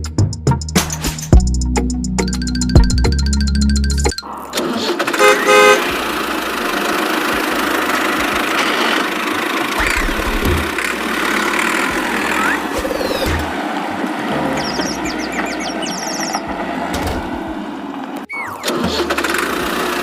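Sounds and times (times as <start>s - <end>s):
vehicle running: 1.3s - 20.0s
vehicle horn toots: 5.1s - 6.1s.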